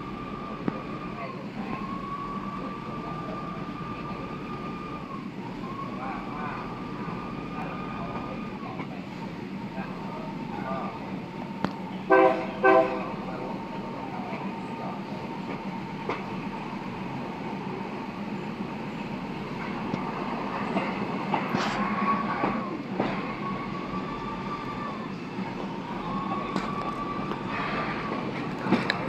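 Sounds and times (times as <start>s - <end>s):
train rail noise clickety-clack: 0.0s - 29.0s
train horn blasts: 12.1s - 13.2s.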